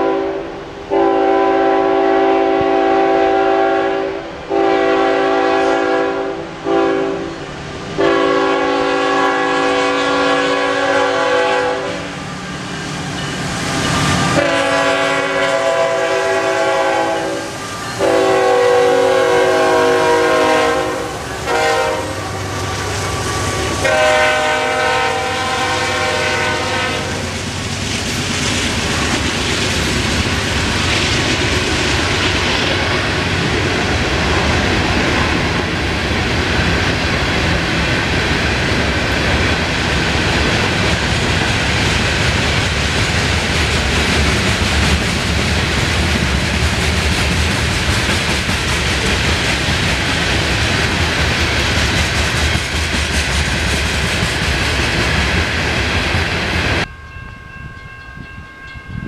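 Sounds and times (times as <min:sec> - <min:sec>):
locomotive horn: 0:00.0 - 0:07.4, 0:08.0 - 0:12.2, 0:14.0 - 0:27.4
train wheels rumbling and clattering: 0:06.6 - 0:56.9.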